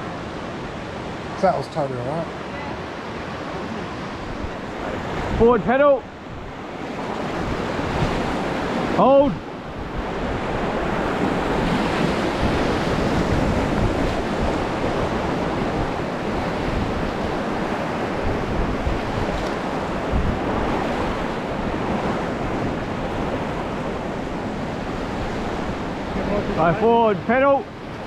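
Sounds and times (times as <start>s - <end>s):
whitewater rushing: 0.0s - 28.0s
wind buffeting microphone: 3.4s - 28.0s.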